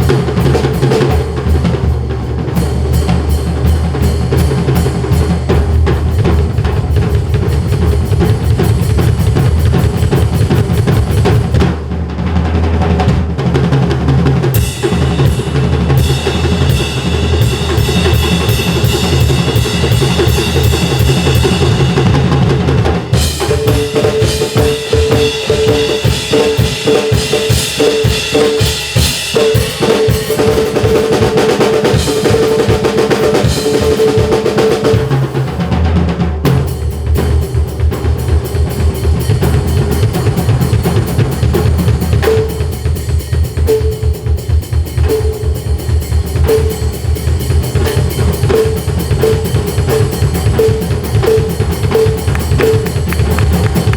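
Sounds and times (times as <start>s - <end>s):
fast drum kit playing: 0.0s - 53.9s.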